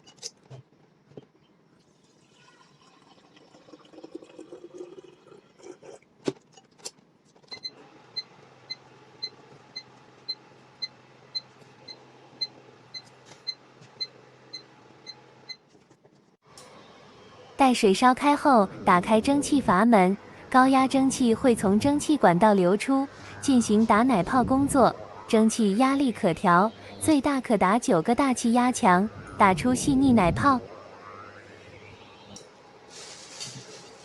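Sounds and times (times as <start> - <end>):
water pouring: 1.8 - 6.0
low steady hum: 16.6 - 32.9.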